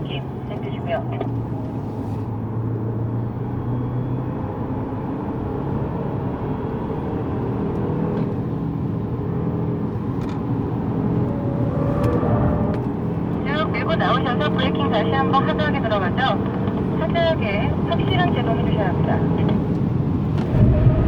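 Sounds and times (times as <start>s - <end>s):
tyre and road noise: 0.0s - 21.0s
car engine accelerating: 0.3s - 21.0s.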